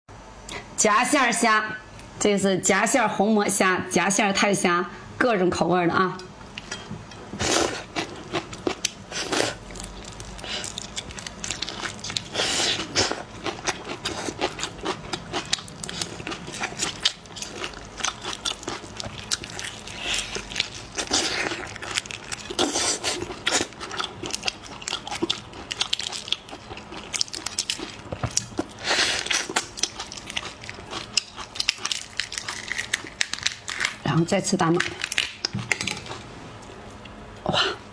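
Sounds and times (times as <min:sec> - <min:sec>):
person chewing food: 0:06.4 - 0:34.0.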